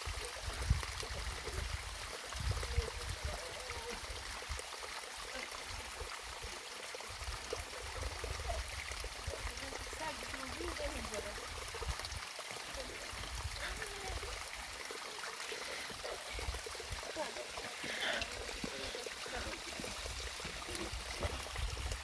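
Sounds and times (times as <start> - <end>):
rain and running water: 0.0 - 22.0
wind rumbling on microphone: 0.4 - 3.4, 20.0 - 22.0.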